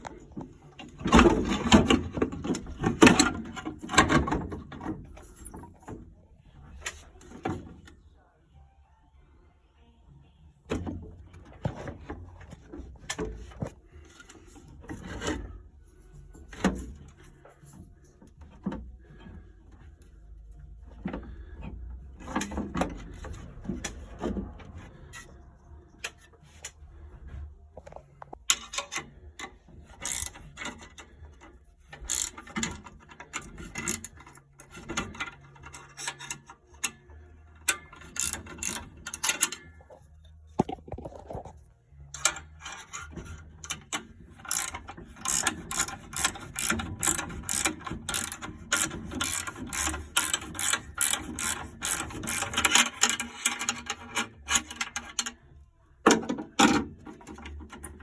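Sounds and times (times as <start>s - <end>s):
ratchet tool clicking: 30.0s - 31.0s, 32.0s - 34.4s, 37.7s - 39.6s, 42.2s - 55.4s.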